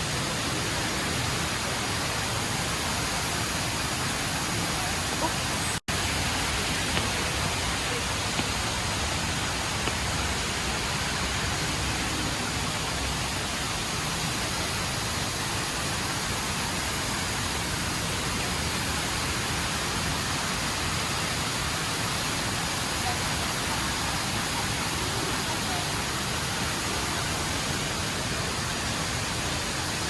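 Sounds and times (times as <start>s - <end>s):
faint crowd murmur: 2.8s - 9.7s.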